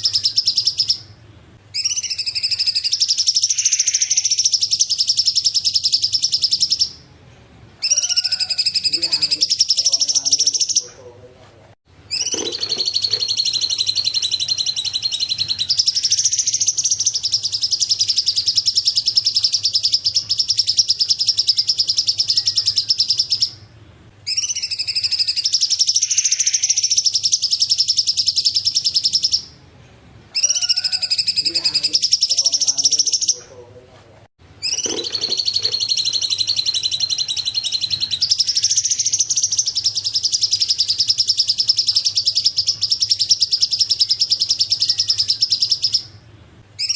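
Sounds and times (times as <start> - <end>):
songbirds chirping in fast trills: 12.1 - 23.6, 34.6 - 46.1.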